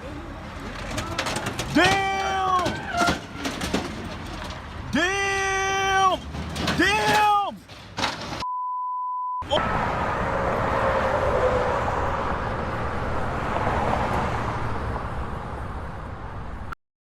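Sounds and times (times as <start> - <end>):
vehicle road noise: 0.0 - 8.4, 9.4 - 16.8
censor bleep tone: 8.4 - 9.5.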